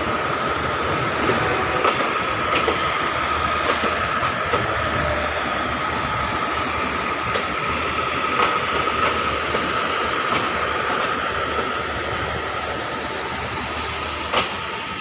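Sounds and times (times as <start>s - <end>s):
train wheel and rail rumble: 0.0s - 15.0s
wheels clicking over rail joints: 3.6s - 4.7s, 8.4s - 9.7s.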